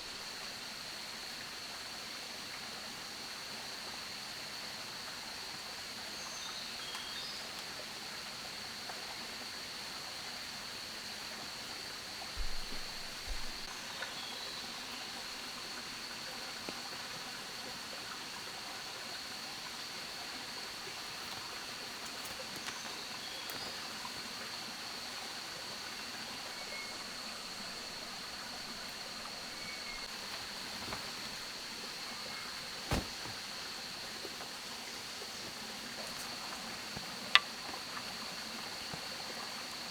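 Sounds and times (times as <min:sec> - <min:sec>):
high insect drone: 0:00.0 - 0:39.9
rushing stream: 0:12.4 - 0:39.9
faint chirps: 0:21.2 - 0:25.1, 0:25.8 - 0:36.5
dull thumps: 0:29.4 - 0:34.6.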